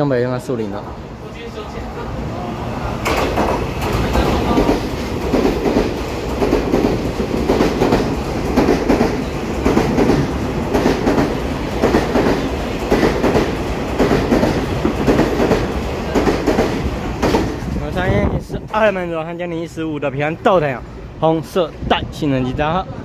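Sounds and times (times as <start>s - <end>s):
train rumble: 0.4s - 23.0s
train wheels clattering over rail joints: 3.0s - 17.8s.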